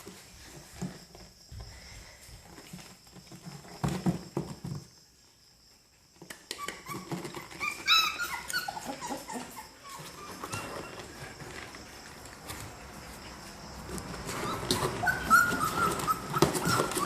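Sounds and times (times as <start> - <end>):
puppies whimpering and yelping: 6.5 - 11.6, 14.2 - 17.0.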